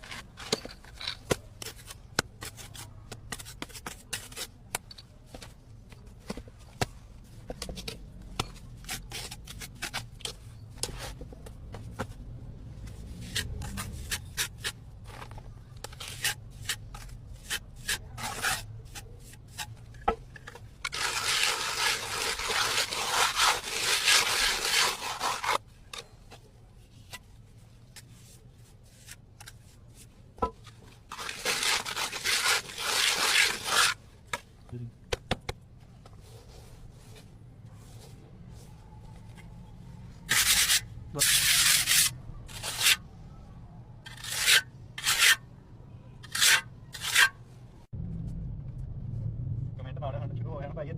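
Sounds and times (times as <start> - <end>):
tools scraping on plaster wall: 15.8 - 26.2, 31.1 - 34.0, 40.3 - 43.0, 44.1 - 45.4, 46.2 - 47.4.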